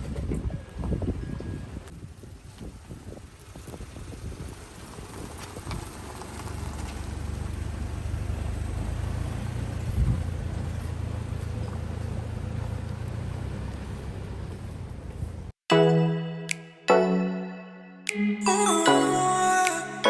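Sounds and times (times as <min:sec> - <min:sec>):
road and engine rumble: 0:00.0 - 0:15.6.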